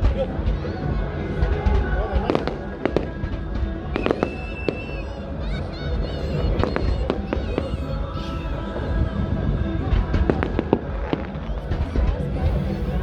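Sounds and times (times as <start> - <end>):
firework whistle: 3.9 - 5.2.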